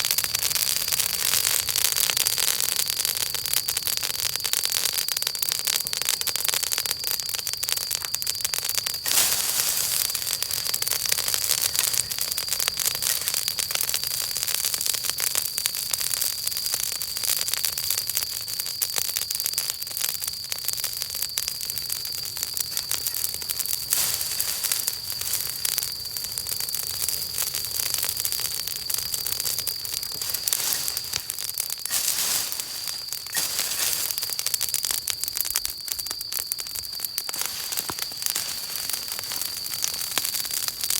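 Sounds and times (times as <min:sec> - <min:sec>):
campfire crackling and popping: 0:00.0 - 0:40.9
thin high hiss: 0:09.0 - 0:12.3, 0:23.8 - 0:25.7, 0:30.1 - 0:34.8, 0:37.3 - 0:39.6.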